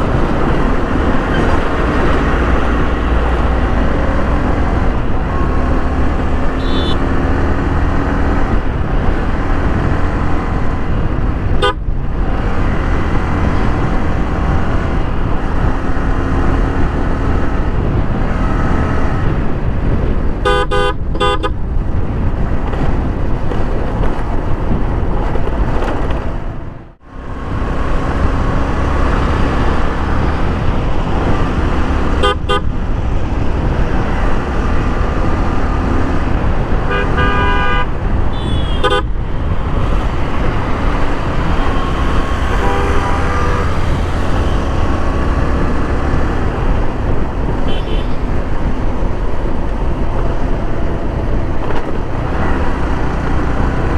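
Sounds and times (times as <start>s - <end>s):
road noise: 0.0s - 53.9s
wind rush: 0.0s - 53.9s
vehicle horns honking: 6.4s - 7.3s, 11.6s - 11.9s, 20.4s - 21.6s, 32.1s - 32.8s, 36.8s - 39.2s, 41.3s - 45.2s, 47.6s - 48.3s.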